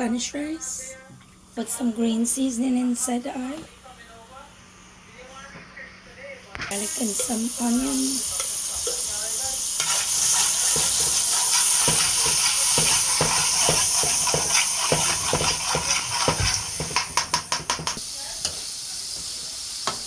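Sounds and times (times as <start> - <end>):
food sizzling in hot oil: 6.7 - 20.0
spoon scraping a pot: 9.8 - 18.0.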